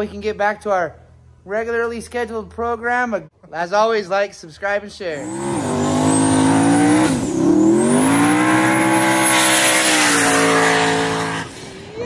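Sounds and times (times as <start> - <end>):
engine revving high: 5.2 - 11.8.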